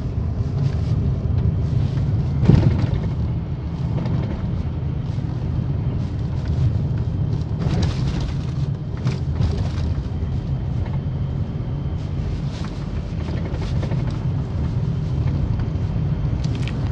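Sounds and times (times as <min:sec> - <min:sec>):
road rumble: 0:00.0 - 0:16.9
suspension strut knocking: 0:01.4 - 0:04.7.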